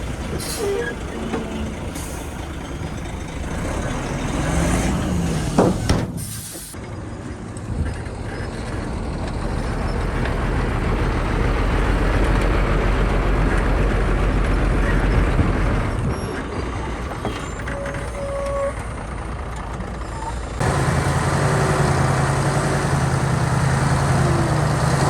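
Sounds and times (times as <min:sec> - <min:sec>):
heavy diesel engine running hard: 0:18.2 - 0:25.0.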